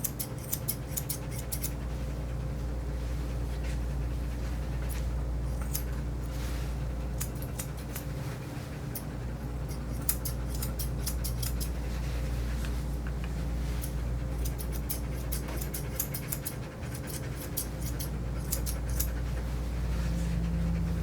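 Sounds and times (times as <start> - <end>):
grooming shears snipping: 0.0 - 1.8, 4.9 - 6.0, 7.2 - 8.2, 8.9 - 11.8, 13.8 - 19.3
steady low hum: 0.0 - 21.0.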